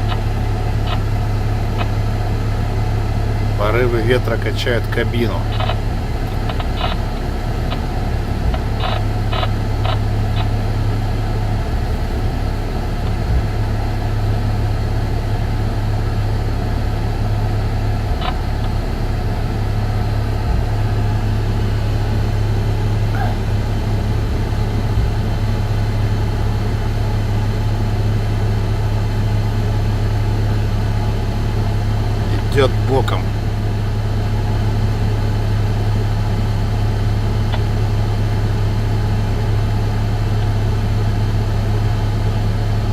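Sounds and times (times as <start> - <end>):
faint clicks: 0.0 - 2.0, 5.4 - 10.8, 17.2 - 21.1
cab low hum and rumble: 0.0 - 42.9
gusty wind buffeting: 0.0 - 42.9.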